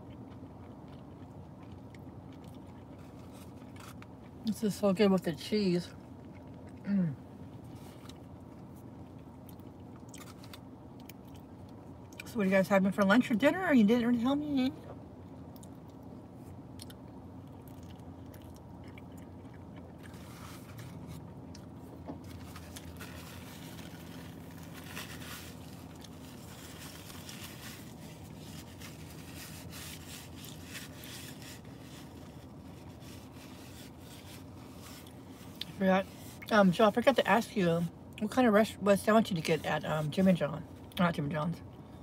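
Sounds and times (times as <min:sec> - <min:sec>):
person biting and chewing: 0:00.0 - 0:04.4, 0:08.0 - 0:12.2, 0:15.4 - 0:35.7
steady low hum: 0:00.0 - 0:42.0.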